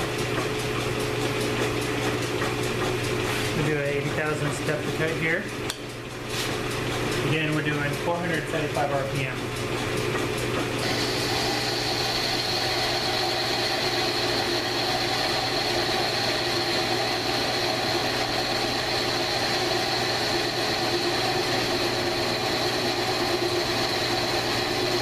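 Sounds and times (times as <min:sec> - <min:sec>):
lathe running with low hum: 0:00.0 - 0:25.0
high whine of metal cutting: 0:10.8 - 0:25.0.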